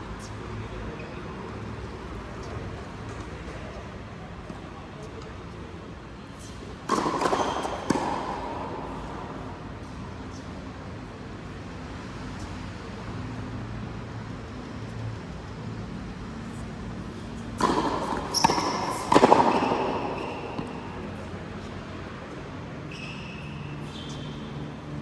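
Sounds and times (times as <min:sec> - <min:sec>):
racket hitting ball: 0:06.4 - 0:10.4, 0:17.0 - 0:22.4.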